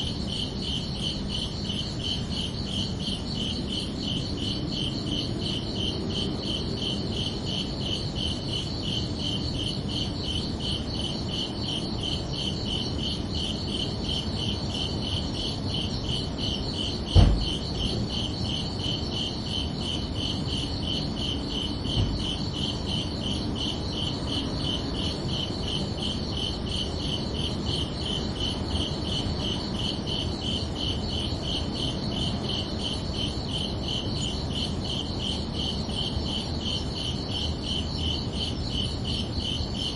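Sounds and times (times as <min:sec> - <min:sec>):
crickets chirping: 0:00.0 - 0:39.9
loud low thump: 0:17.1 - 0:17.7.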